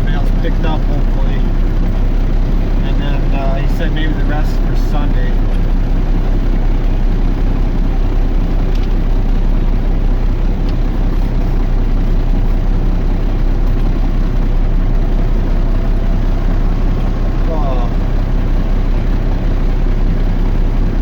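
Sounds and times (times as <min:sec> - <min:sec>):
truck diesel engine idling: 0:00.0 - 0:21.0.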